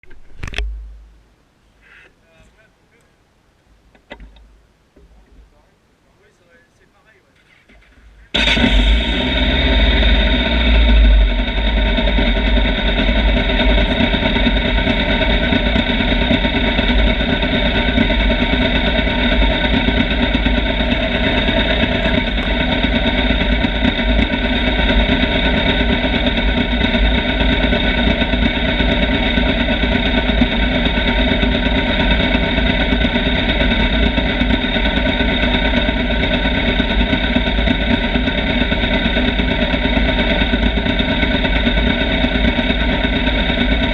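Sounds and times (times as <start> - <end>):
motorcycle engine running: 7.2 - 43.9.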